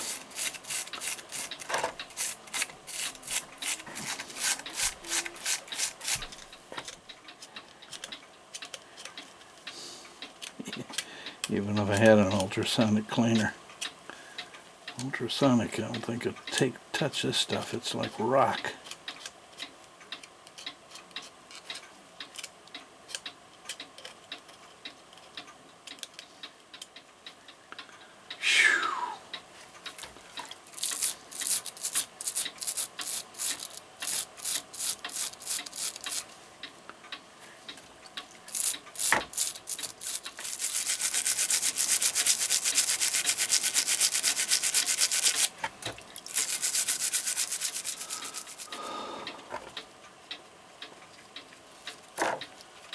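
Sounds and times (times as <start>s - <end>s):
brush scrubbing metal parts: 0.0s - 6.3s, 30.8s - 36.3s, 38.5s - 45.6s, 46.2s - 48.7s.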